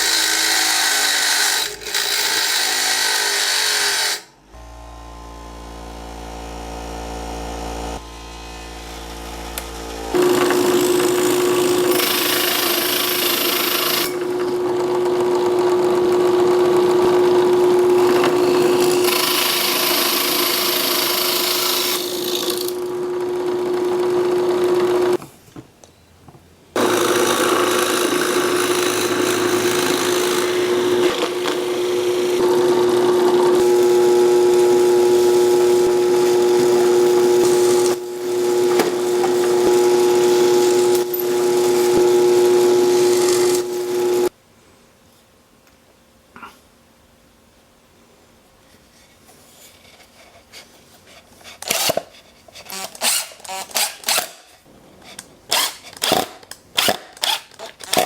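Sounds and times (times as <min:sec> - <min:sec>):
power tool motor whining: 0:06.0 - 0:25.2, 0:26.8 - 0:44.3
harsh high-pitched grinding on metal: 0:10.1 - 0:14.2, 0:17.3 - 0:22.9, 0:26.8 - 0:44.3.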